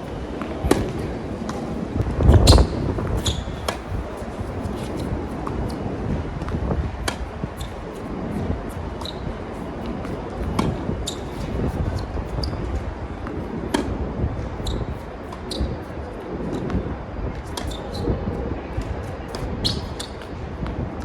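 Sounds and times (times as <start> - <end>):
wind noise on microphone: 0.0 - 21.0
racket striking tennis ball: 0.4 - 5.8, 6.4 - 8.0, 13.3 - 14.0.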